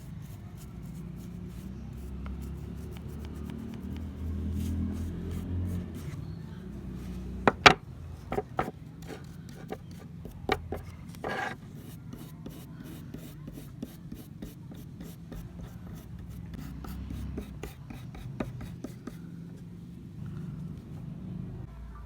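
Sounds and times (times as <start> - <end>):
rubbing and scraping on pliers: 8.2 - 12.7.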